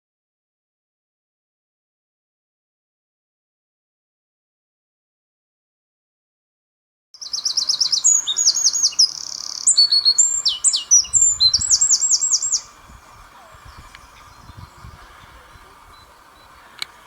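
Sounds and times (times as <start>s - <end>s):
wren singing: 7.2s - 17.0s.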